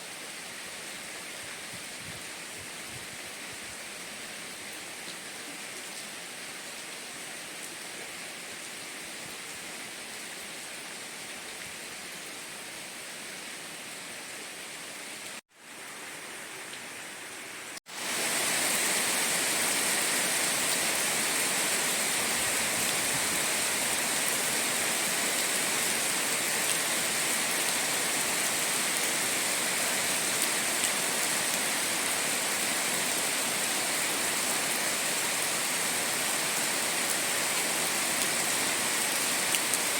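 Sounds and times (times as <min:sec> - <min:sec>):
heavy rain hissing: 0:15.3 - 0:39.9.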